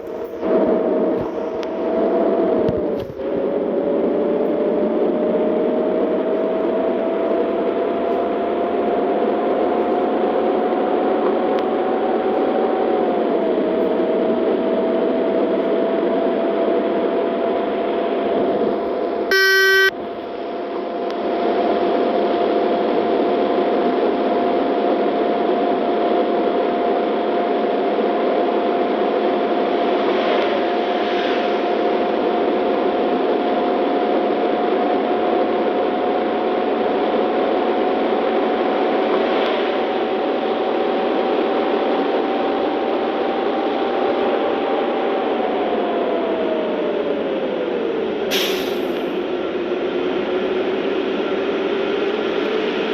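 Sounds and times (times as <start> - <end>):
constant whine: 0.0 - 52.9
road noise inside car: 0.0 - 52.9
short loud beep: 19.3 - 20.0.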